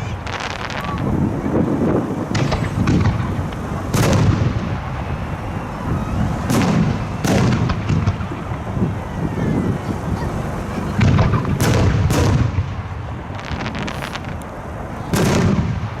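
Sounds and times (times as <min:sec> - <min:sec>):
fireworks sharp cracks: 0:00.0 - 0:08.9, 0:10.9 - 0:16.0
fireworks booming: 0:00.0 - 0:16.0.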